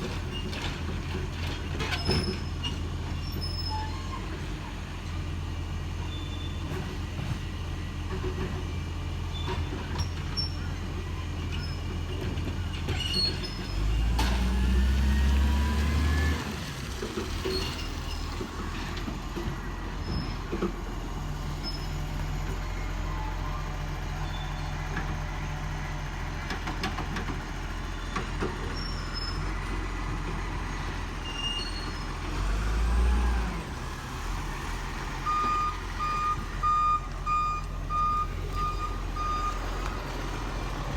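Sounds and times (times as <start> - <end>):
diesel truck engine idling and revving: 0.0 - 40.9.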